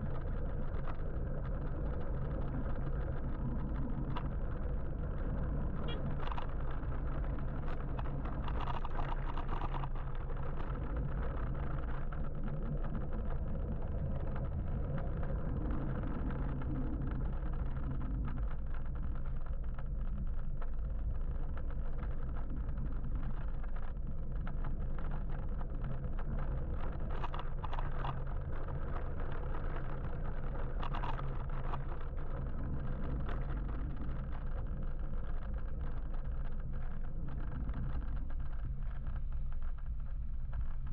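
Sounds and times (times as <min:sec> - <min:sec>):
electric motorbike road noise: 0:00.0 - 0:40.9.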